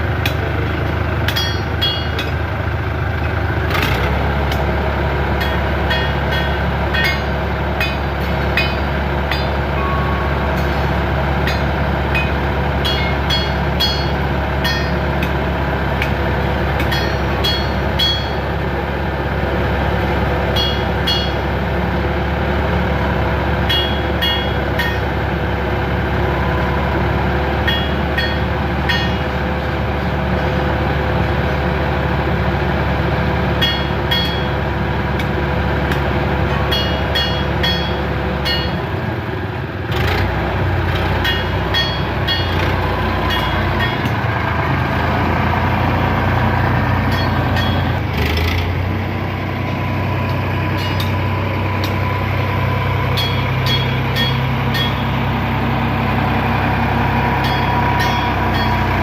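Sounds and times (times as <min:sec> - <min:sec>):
heavy engine droning: 0:00.0 - 0:59.0.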